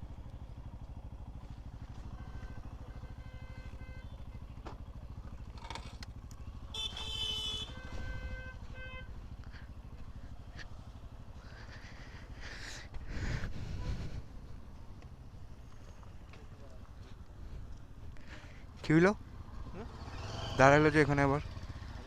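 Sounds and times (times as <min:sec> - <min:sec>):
motorcycle engine running: 0:00.0 - 0:22.0
vehicle horns honking: 0:01.9 - 0:04.6, 0:06.6 - 0:09.3.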